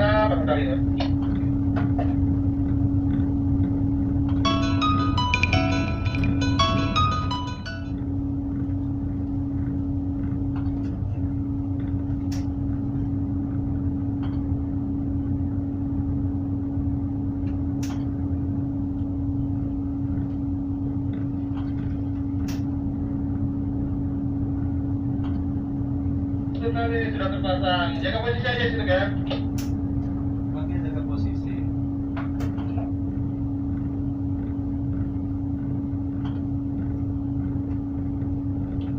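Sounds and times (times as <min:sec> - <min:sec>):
diesel engine rumbling: 0:00.0 - 0:16.5.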